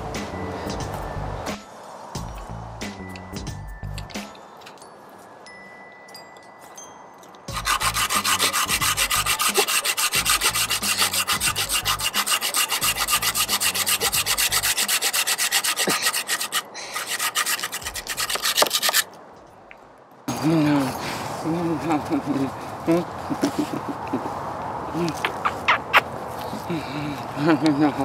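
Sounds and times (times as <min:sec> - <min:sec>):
hand saw cutting wood: 0:07.5 - 0:19.1.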